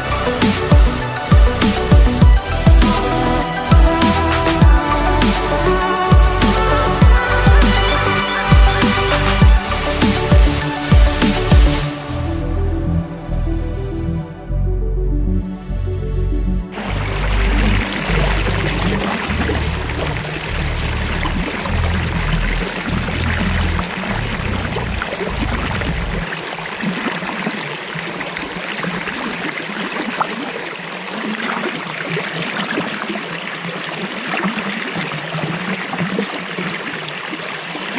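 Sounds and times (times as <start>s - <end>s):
stream water rushing: 0.0s - 12.1s, 16.8s - 37.9s
low rumble: 0.0s - 26.3s.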